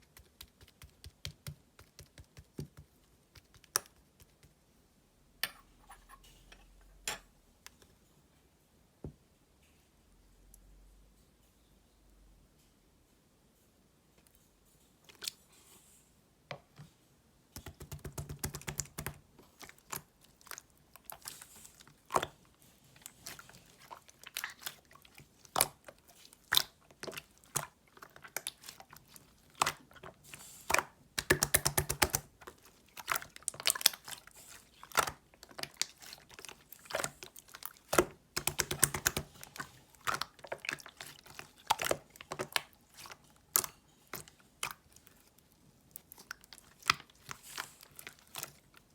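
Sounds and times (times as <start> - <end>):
slime squished by hand: 17.6 - 45.2.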